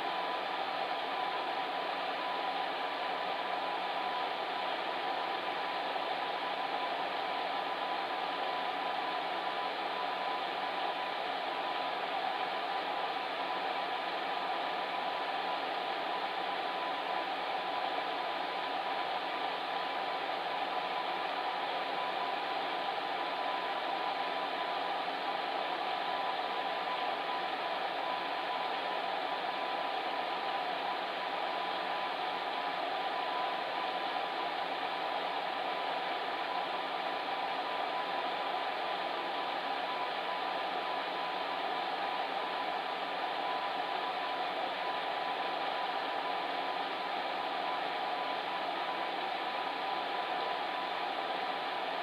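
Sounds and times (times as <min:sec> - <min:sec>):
faint steady hum: 0:00.0 - 0:52.0
faint steady tone: 0:00.0 - 0:52.0.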